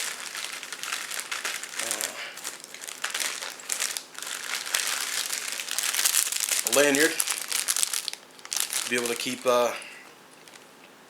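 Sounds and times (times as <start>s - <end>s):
packaging crinkling: 0.0s - 10.8s.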